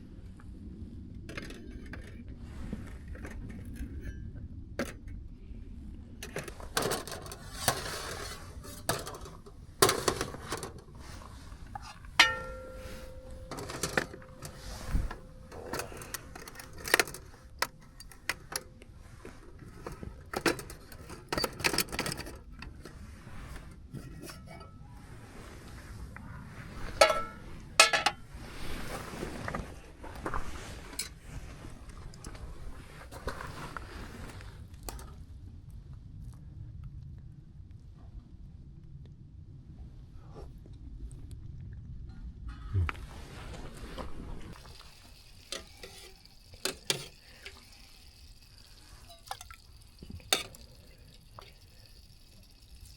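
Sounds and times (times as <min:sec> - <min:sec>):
ringing metal clang: 0:12.2 - 0:15.2
metal cookware clinks and knocks: 0:12.2 - 0:17.2, 0:27.0 - 0:28.2.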